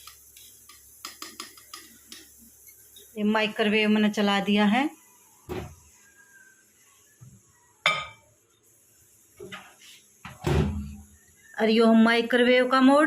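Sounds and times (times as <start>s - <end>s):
mug clinking: 7.8s - 8.2s.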